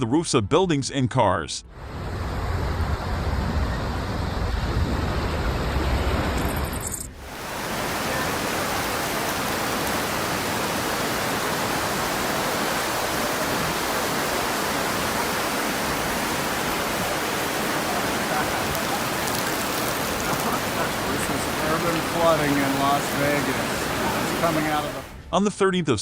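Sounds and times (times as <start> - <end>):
rush of pouring water: 7.2 - 25.2.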